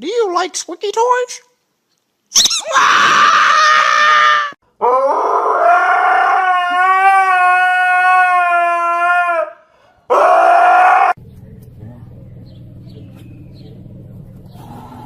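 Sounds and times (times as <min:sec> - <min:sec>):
dog howling: 0:02.6 - 0:11.2.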